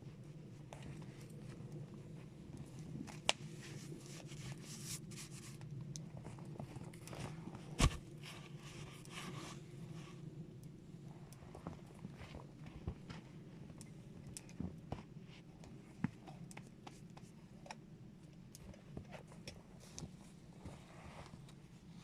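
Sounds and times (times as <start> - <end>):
rustling and scraping: 3.0 - 10.2, 19.0 - 21.9.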